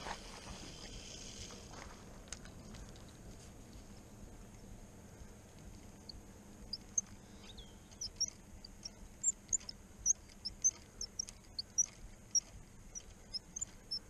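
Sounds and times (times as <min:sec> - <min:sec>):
small birds chirping: 0:05.8 - 0:14.0.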